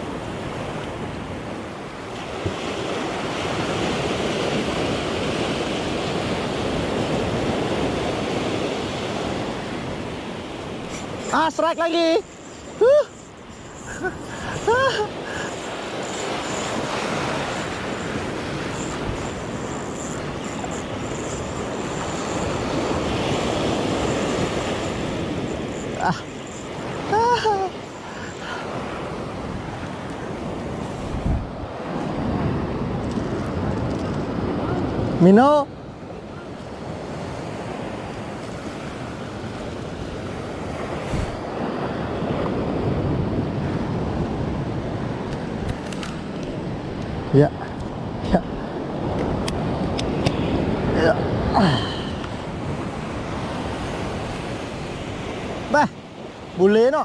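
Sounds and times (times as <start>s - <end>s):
surf rushing on shore: 0.0s - 57.0s
wind buffeting microphone: 12.2s - 35.2s, 36.1s - 55.7s.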